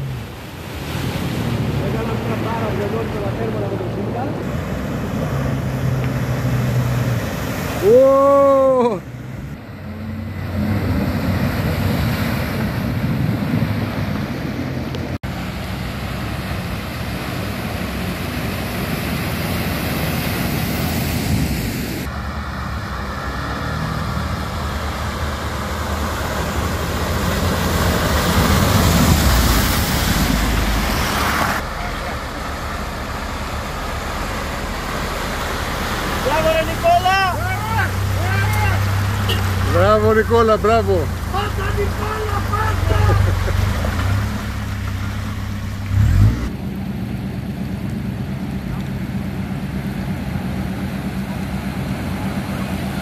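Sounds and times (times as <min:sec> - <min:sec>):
steady rushing noise: 0:10.6 - 0:43.0
vehicle engine running: 0:22.0 - 0:53.0.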